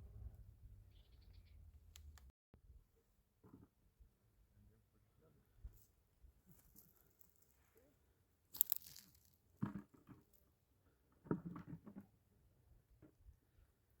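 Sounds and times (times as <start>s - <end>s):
faint crunches: 6.5s - 7.9s, 8.5s - 10.4s.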